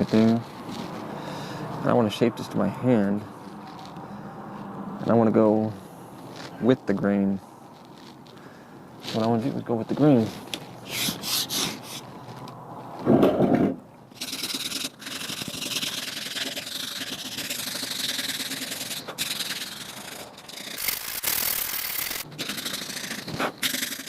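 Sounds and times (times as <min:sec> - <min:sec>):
sandpaper rubbing on wood: 0:10.8 - 0:12.1, 0:14.2 - 0:24.0.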